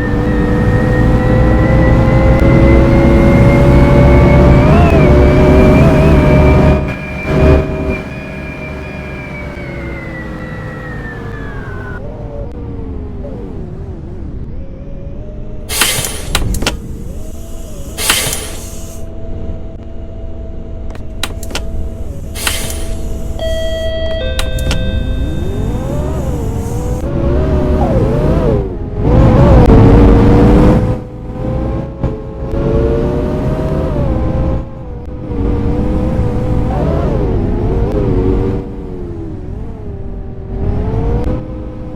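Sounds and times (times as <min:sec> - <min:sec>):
bus engine: 0:00.0 - 0:41.9
air hissing: 0:15.7 - 0:19.1, 0:22.2 - 0:23.4
electronic beep: 0:22.7 - 0:27.0.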